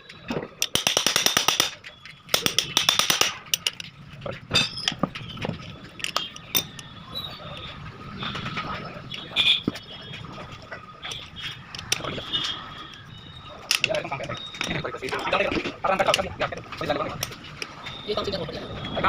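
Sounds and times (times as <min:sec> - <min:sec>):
rapid clicking: 0:00.6 - 0:03.8
metal tools clinking: 0:00.6 - 0:07.0.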